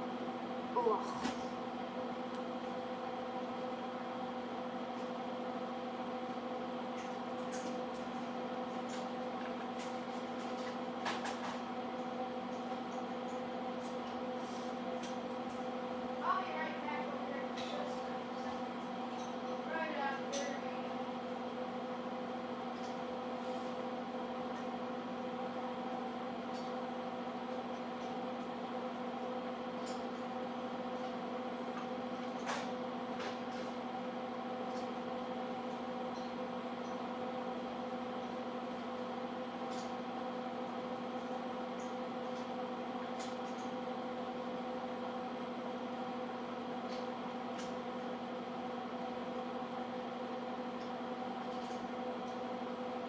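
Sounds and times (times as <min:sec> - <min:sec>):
steady machine hum: 0:00.0 - 0:07.5, 0:11.7 - 0:53.0.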